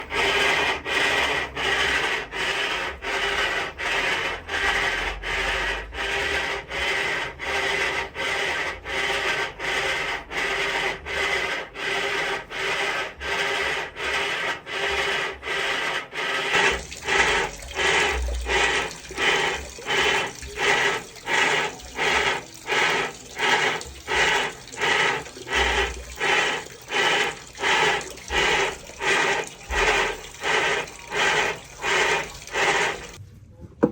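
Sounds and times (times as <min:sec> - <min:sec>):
washing machine rubbing scraping: 0:00.0 - 0:33.2
water sloshing: 0:16.5 - 0:33.2.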